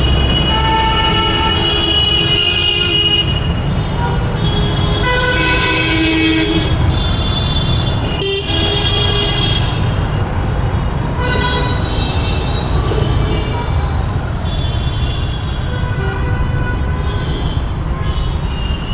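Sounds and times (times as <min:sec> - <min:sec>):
vehicle horns honking: 0:00.0 - 0:09.9, 0:11.1 - 0:13.6
low rumble of traffic: 0:00.0 - 0:18.9.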